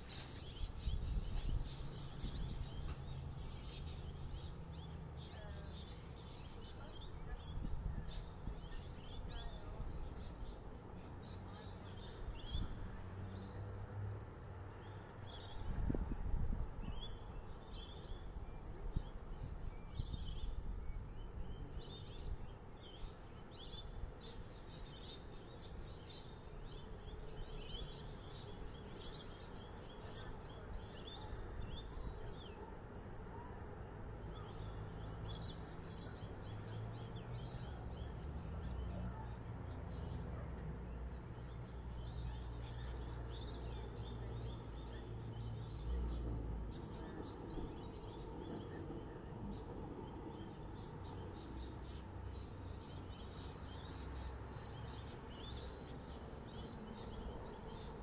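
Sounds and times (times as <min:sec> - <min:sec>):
birds chirping: 0:00.0 - 0:13.1.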